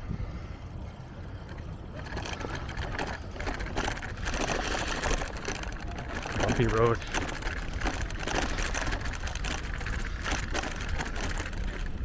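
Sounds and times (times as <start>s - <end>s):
bicycle rattling over bumpy road: 0.0s - 12.0s
low steady rumble: 0.0s - 12.0s.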